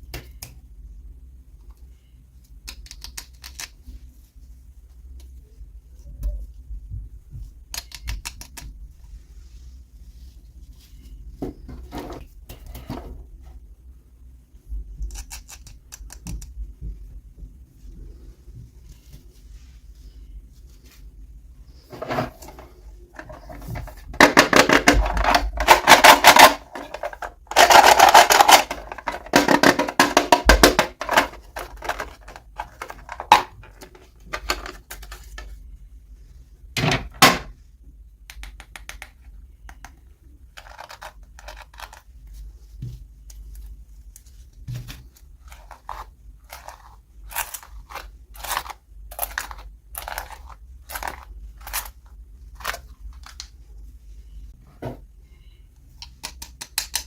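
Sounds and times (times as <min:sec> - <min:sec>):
small plastic parts clicking: 0:02.6 - 0:03.8, 0:07.7 - 0:08.7, 0:15.0 - 0:16.6, 0:23.2 - 0:35.5, 0:40.6 - 0:42.0, 0:45.5 - 0:52.0, 0:56.0 - 0:57.0.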